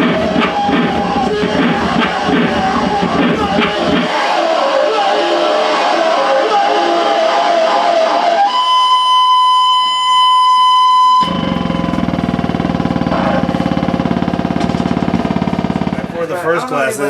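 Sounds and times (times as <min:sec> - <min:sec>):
low pulsing buzzing drone: 0:00.0 - 0:04.1, 0:11.2 - 0:16.3
distorted noise wash: 0:00.0 - 0:10.1, 0:11.2 - 0:16.4
high whine with overtones: 0:00.0 - 0:16.4.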